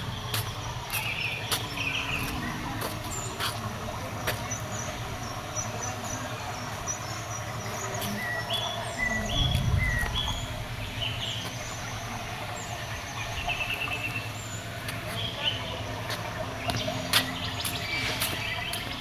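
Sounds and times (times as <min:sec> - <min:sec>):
outdoor background noise: 0:00.0 - 0:19.0
small birds chirping: 0:00.0 - 0:19.0
low rumble: 0:08.8 - 0:13.7.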